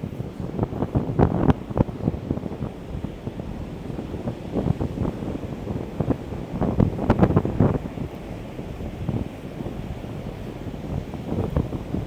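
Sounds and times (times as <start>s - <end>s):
heavy ocean surf: 0.0s - 12.0s
wind buffeting microphone: 0.0s - 12.0s.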